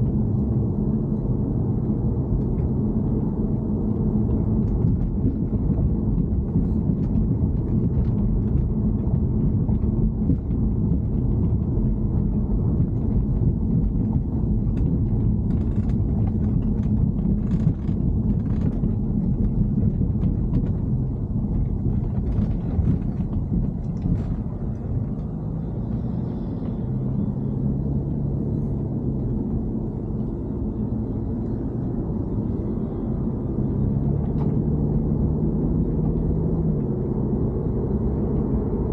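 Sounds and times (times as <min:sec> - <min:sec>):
car engine rumbling: 0:00.0 - 0:38.9
low hum: 0:00.0 - 0:38.9.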